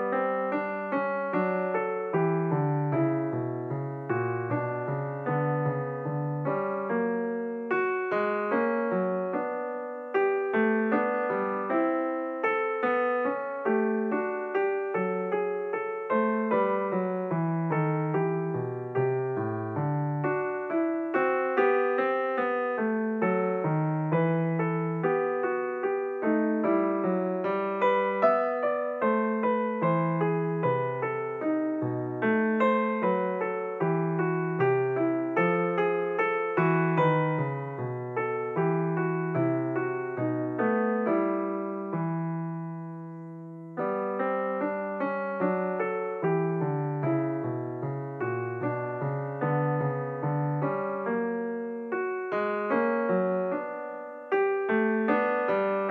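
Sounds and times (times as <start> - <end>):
piano music: 0.0 - 55.9.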